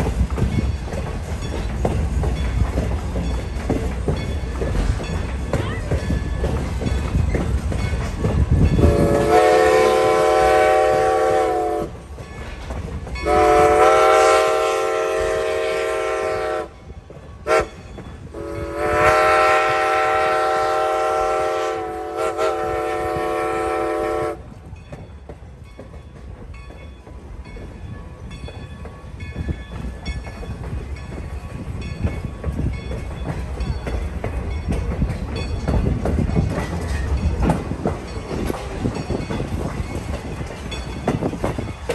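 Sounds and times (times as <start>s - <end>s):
train wheels clicking over rail joints: 0.0s - 41.9s
steam locomotive whistle blasts: 8.8s - 11.9s, 13.2s - 16.8s, 17.4s - 24.4s.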